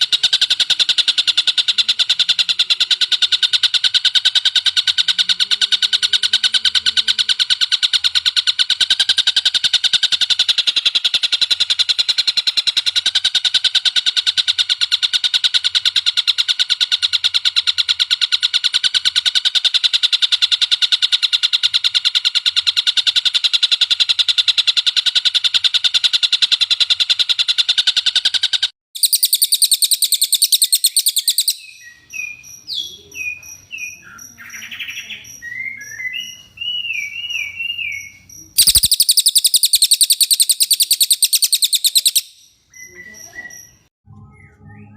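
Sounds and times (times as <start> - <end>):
bird chirps and sliding whistles: 28.3 - 44.9
songbird trilling: 29.0 - 43.9
faint high ticking: 38.6 - 42.4.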